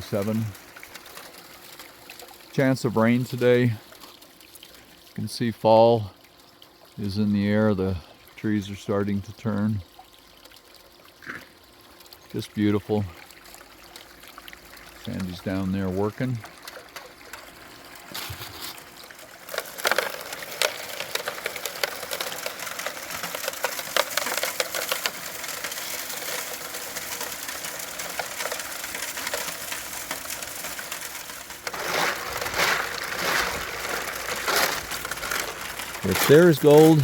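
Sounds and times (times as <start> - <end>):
water running and pouring: 0.0 - 37.0
gravel and stones rattling: 18.1 - 37.0.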